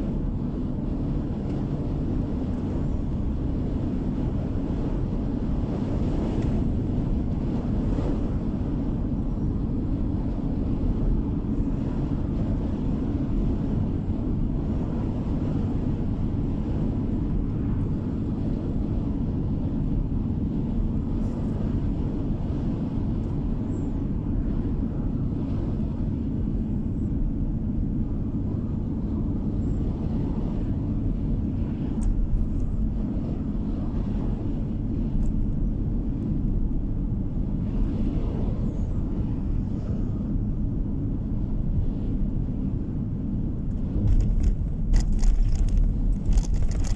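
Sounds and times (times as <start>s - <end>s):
car interior road rumble: 27.8s - 46.9s.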